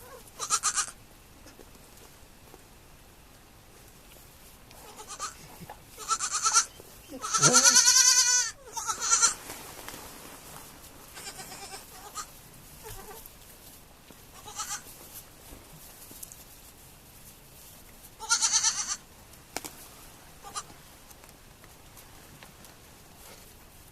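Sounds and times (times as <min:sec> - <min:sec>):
young goats bleating: 0:00.0 - 0:01.0, 0:04.8 - 0:09.4, 0:11.0 - 0:13.3, 0:14.3 - 0:14.9, 0:18.2 - 0:19.1, 0:20.4 - 0:20.7.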